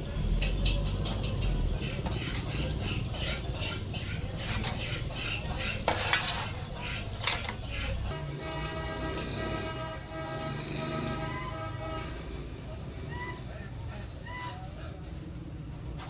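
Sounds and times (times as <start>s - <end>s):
metal tools clinking and scraping: 0.4s - 8.1s.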